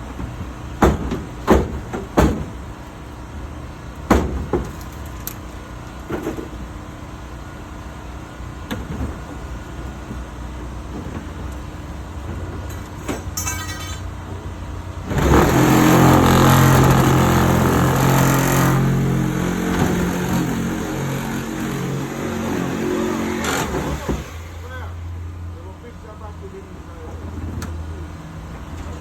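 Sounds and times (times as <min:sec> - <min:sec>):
engine revving: 0:15.1 - 0:24.0.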